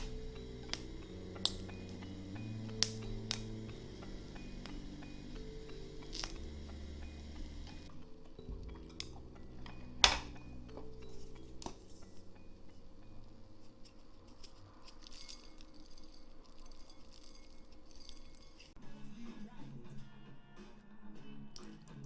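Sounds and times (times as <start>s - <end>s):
small ticks: 0.0s - 9.8s
glassware clinking: 0.0s - 13.7s
soft background music: 0.0s - 22.0s.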